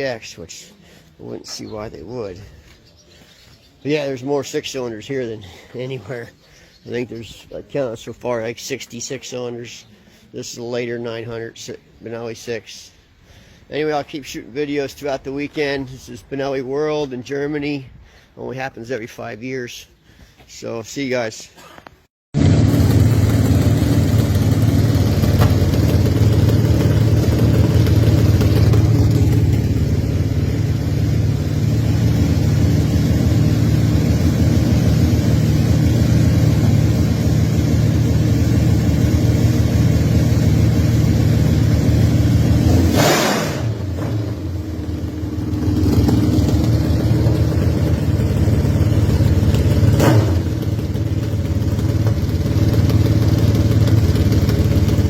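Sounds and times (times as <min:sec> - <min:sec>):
motorcycle engine running: 0:22.4 - 0:55.0.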